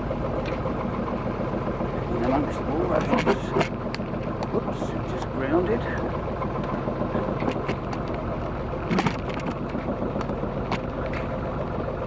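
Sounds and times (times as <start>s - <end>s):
boat engine running: 0.0s - 12.0s
sharp clicks and knocks: 2.2s - 4.6s, 6.0s - 8.2s, 8.8s - 11.4s.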